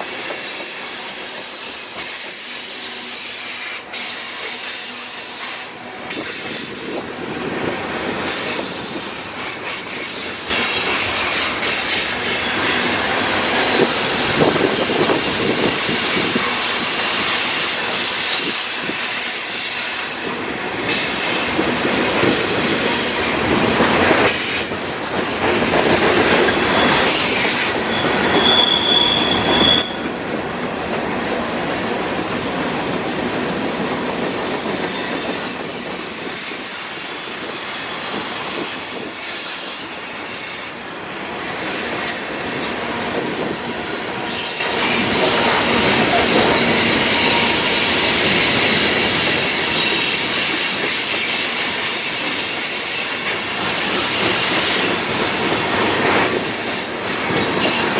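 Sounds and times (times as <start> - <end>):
train wheels rumbling on rails: 0.0 - 57.9
high-pitched wheel squeal: 26.4 - 30.0, 33.2 - 39.6, 44.4 - 53.2.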